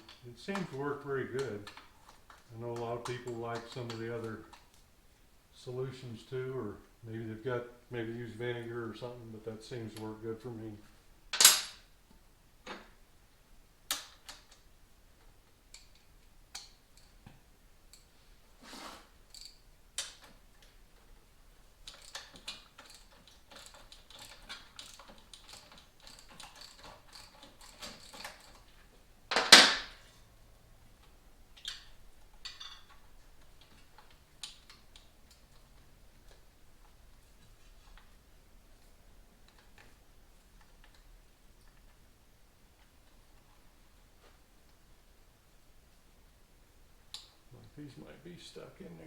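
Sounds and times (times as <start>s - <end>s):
hand tools clicking and clinking: 21.8s - 29.8s, 31.6s - 36.4s.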